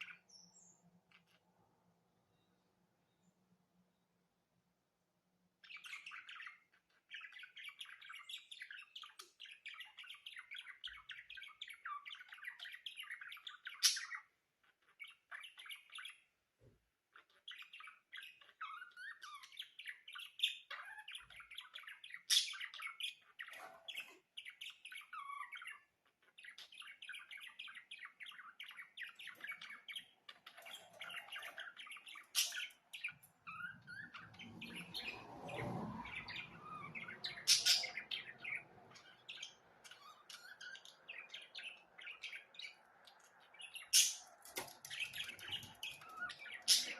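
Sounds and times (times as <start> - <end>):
sharp bird calls: 17.6 - 46.9
budgerigars warbling: 28.5 - 35.3, 36.0 - 46.9.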